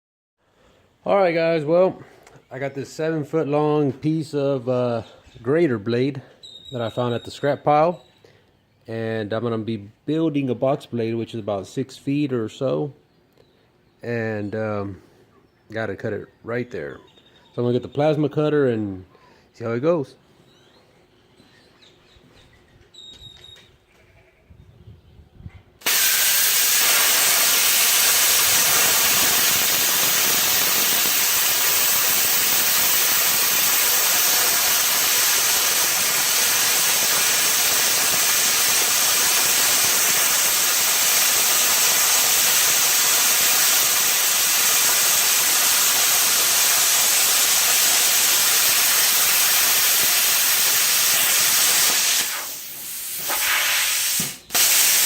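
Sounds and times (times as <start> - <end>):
plasma cutter hissing through steel: 25.8 - 55.0.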